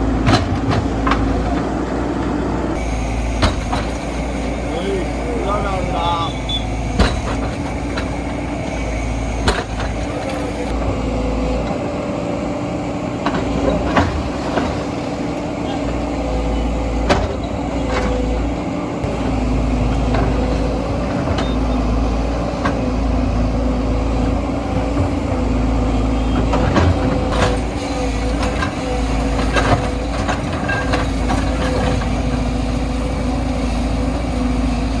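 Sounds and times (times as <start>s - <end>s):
heavy diesel engine running: 0.0s - 35.0s.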